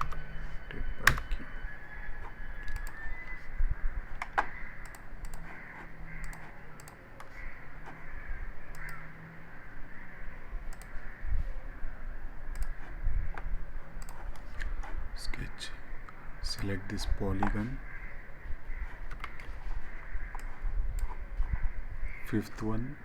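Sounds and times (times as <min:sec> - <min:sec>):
keyboard and mouse clicks: 0:00.0 - 0:00.3, 0:01.0 - 0:01.4, 0:02.2 - 0:03.4, 0:04.1 - 0:08.0, 0:08.7 - 0:09.1, 0:10.7 - 0:11.0, 0:12.5 - 0:15.0, 0:16.1 - 0:17.8, 0:18.8 - 0:19.6, 0:20.2 - 0:21.2
low background hum: 0:00.0 - 0:23.0.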